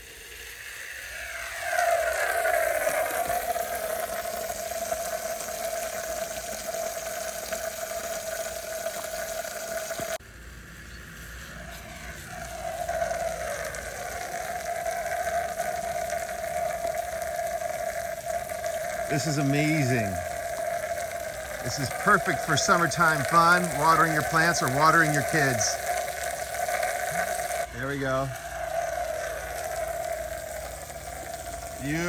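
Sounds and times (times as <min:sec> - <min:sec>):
mid-pitched whine: 0:00.0 - 0:32.0
sprinkler spraying water: 0:00.0 - 0:32.0.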